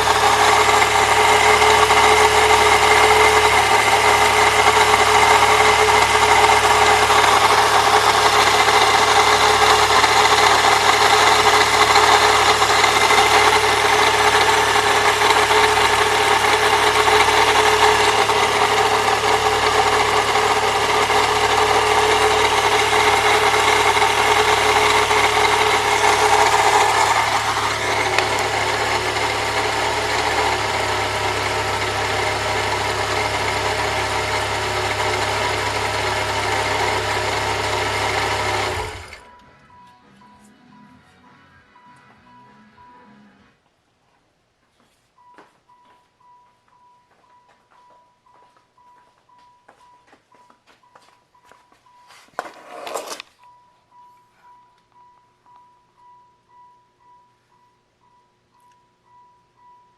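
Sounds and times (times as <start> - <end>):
belt drive grinding: 0.0 - 39.3
car engine idling: 0.0 - 39.8.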